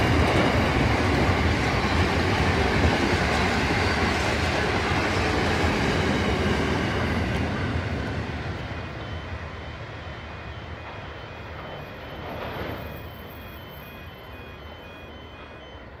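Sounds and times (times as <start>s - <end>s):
freight train rumble: 0.0s - 16.0s
electronic warning beep: 6.8s - 16.0s.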